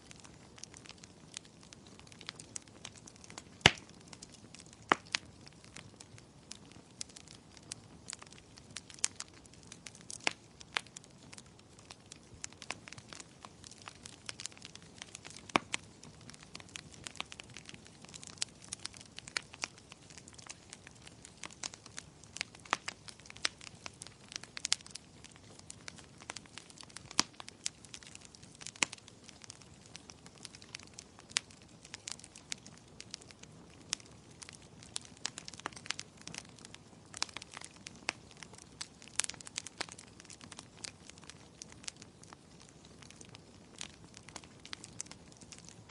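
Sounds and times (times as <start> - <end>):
fire crackling and popping: 0.0 - 45.9.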